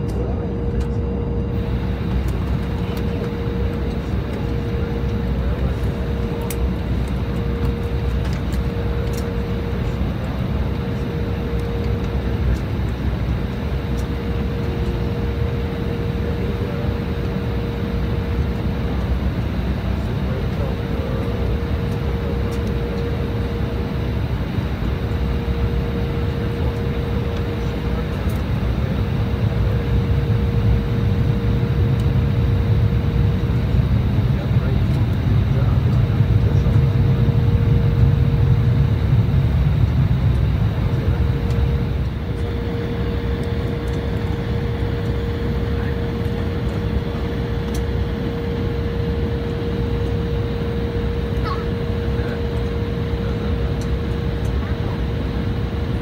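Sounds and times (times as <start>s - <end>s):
jet engines in cabin: 0.0s - 56.0s.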